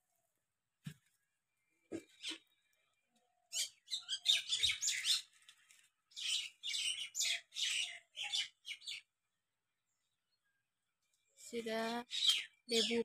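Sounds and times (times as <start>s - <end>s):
birds chirping and chattering: 1.7s - 5.5s, 6.1s - 9.4s, 11.5s - 13.0s.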